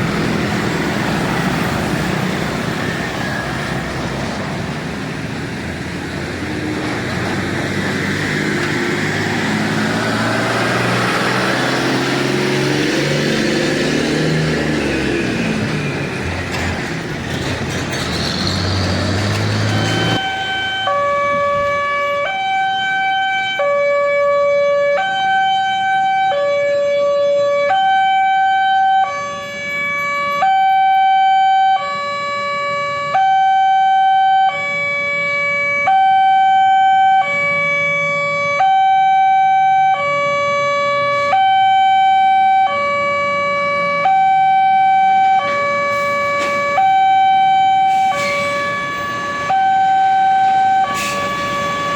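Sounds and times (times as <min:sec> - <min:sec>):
two-tone level crossing alarm: 0:19.6 - 0:51.9.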